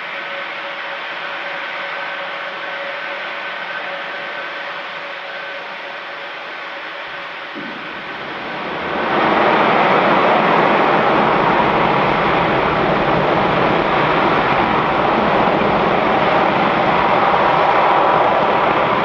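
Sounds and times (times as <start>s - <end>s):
distant rocket engine roar: 7.0s - 19.0s.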